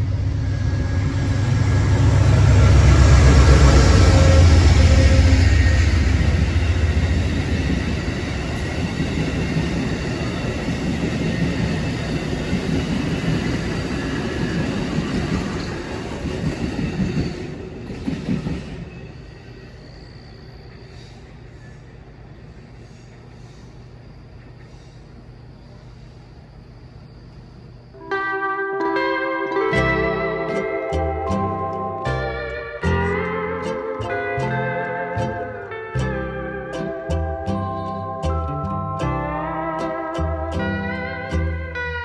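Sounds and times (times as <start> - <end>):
locomotive low rumble: 0.0 - 16.6, 29.7 - 42.0
train cars rolling by: 0.0 - 28.1, 29.8 - 42.0.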